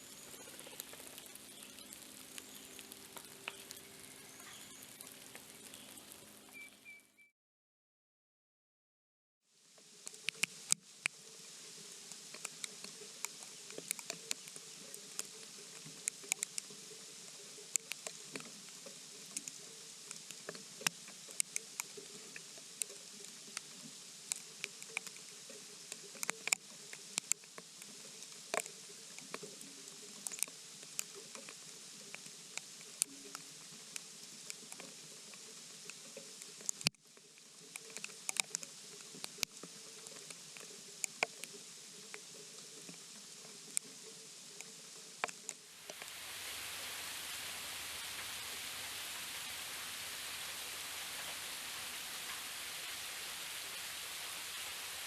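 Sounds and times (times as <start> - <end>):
steady hiss: 0.0 - 7.0, 9.5 - 55.0
light ticks and taps: 9.8 - 11.2, 12.1 - 46.1.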